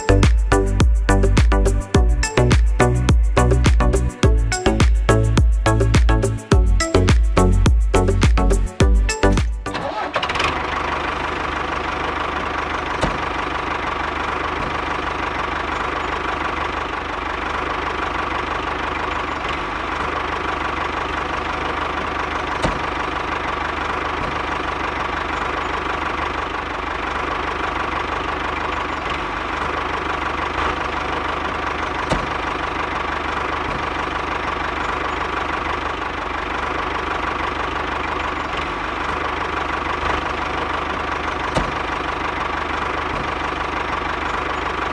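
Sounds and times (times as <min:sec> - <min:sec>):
small engine running: 0:09.7 - 0:44.9.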